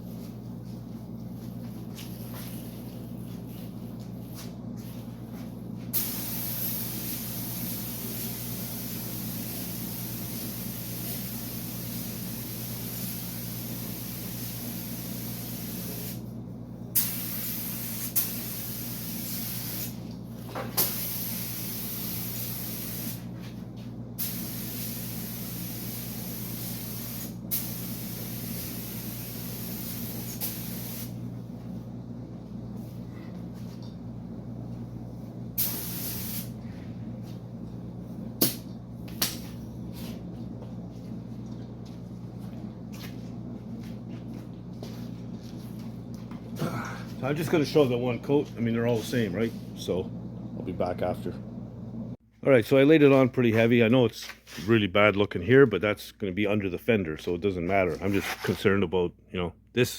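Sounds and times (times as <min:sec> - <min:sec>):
steady low hum: 0:00.0 - 0:59.9
spray gun hissing: 0:05.9 - 0:16.2, 0:17.0 - 0:20.0, 0:20.8 - 0:23.2, 0:24.2 - 0:31.2, 0:35.6 - 0:36.6
sharp burst of air: 0:06.0 - 0:16.2, 0:17.0 - 0:20.0, 0:20.8 - 0:23.2, 0:24.2 - 0:31.2, 0:35.6 - 0:36.6.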